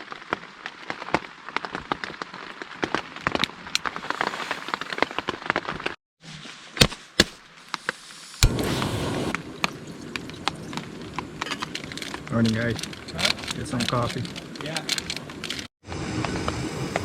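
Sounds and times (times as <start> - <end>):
rain drops tapping on tent: 0.0 - 6.0, 8.4 - 17.0
rain hiss: 3.7 - 5.7, 7.6 - 17.0.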